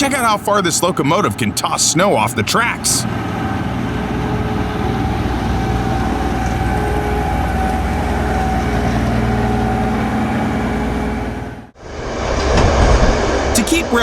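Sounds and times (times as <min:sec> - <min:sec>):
heavy locomotive engine running: 0:00.0 - 0:14.0
continuous rushing noise: 0:10.7 - 0:14.0.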